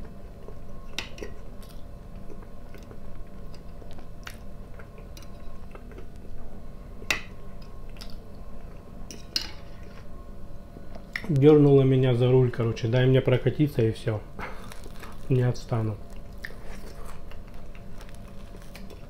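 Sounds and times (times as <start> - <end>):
man chewing: 0.4 - 6.4, 7.0 - 8.9, 14.4 - 15.3, 16.0 - 19.0.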